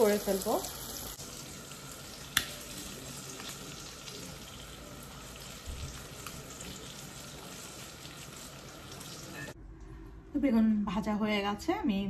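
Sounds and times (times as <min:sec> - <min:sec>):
slices frying in hot oil: 0:00.0 - 0:09.6.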